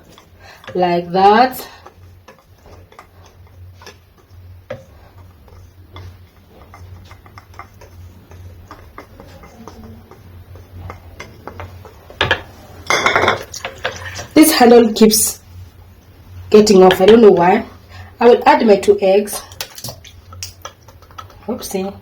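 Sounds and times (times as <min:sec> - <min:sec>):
utensils clicking and tapping: 0:00.0 - 0:14.4, 0:19.4 - 0:22.0
steady low hum: 0:00.0 - 0:22.0.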